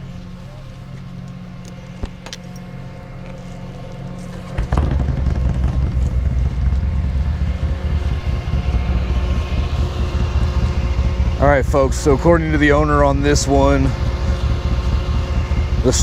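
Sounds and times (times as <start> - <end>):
truck engine running: 0.0 - 16.0.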